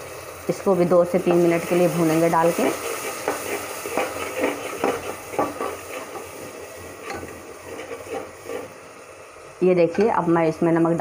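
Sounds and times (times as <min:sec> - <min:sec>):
masala sizzling in a pot: 0:00.0 - 0:11.0
metal spatula scraping a pot: 0:01.2 - 0:08.8.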